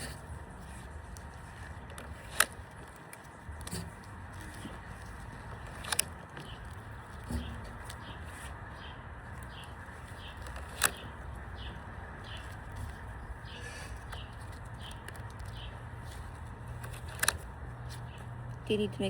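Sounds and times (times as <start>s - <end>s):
low outdoor rumble: 0.0s - 19.0s
bird chirping: 6.4s - 17.0s.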